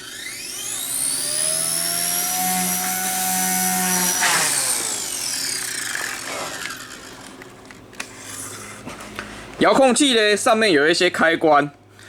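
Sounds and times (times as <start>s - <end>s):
toy helicopter rotor whining: 0.0s - 8.6s.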